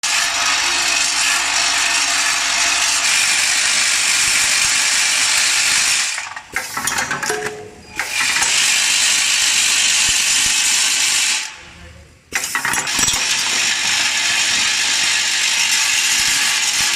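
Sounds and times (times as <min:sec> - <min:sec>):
packaging machine running: 0:00.0 - 0:07.3, 0:12.4 - 0:16.9.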